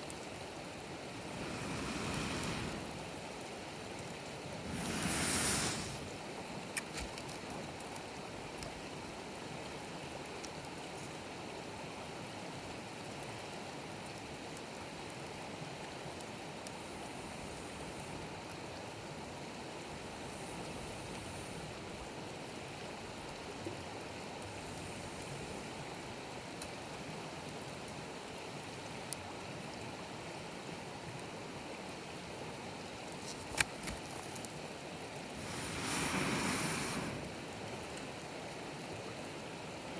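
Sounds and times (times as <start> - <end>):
firewood crackles: 0.0 - 9.2, 14.1 - 23.4, 24.4 - 26.9, 32.8 - 38.6
campfire hissing: 0.1 - 8.7, 15.7 - 23.4, 24.2 - 27.0, 33.0 - 38.6.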